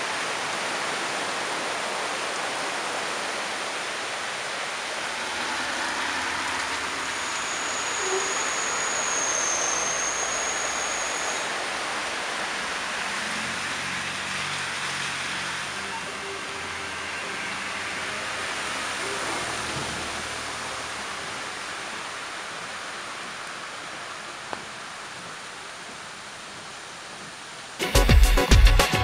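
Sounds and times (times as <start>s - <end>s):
heavy rain on streets: 0.0s - 29.0s
faint high whistle: 5.1s - 12.1s, 15.7s - 20.0s.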